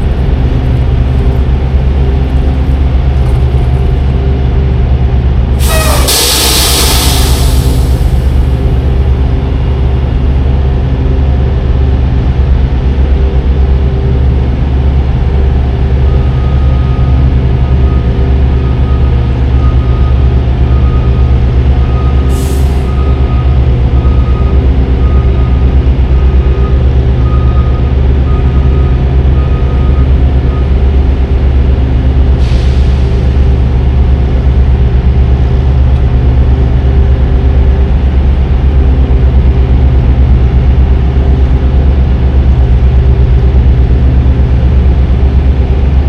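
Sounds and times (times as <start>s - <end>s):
truck diesel engine drone: 0.0s - 46.0s
short air hisses: 5.6s - 8.4s.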